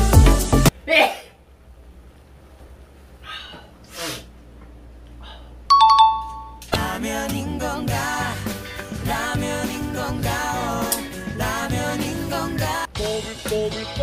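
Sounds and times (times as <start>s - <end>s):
music with singing voice: 0.0s - 0.7s, 6.6s - 14.0s
two-note ding-dong chime: 5.7s - 6.6s.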